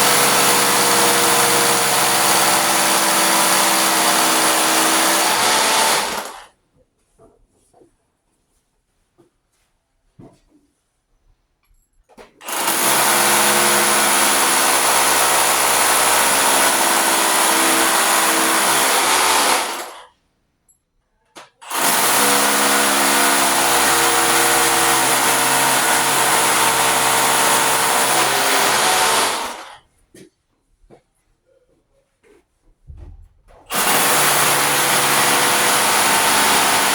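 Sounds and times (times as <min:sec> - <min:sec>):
hammer drill boring into concrete: 0:00.0 - 0:06.5, 0:12.4 - 0:20.1, 0:21.6 - 0:29.8, 0:33.7 - 0:36.9.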